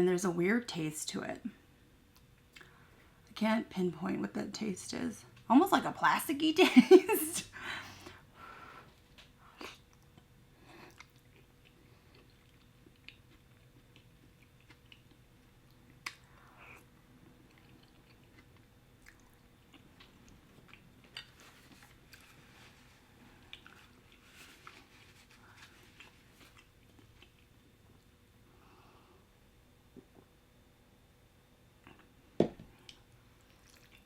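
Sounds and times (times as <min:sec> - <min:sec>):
chewing with mouth clicks: 0:09.0 - 0:22.3, 0:23.2 - 0:25.1, 0:25.8 - 0:27.6, 0:32.8 - 0:34.0.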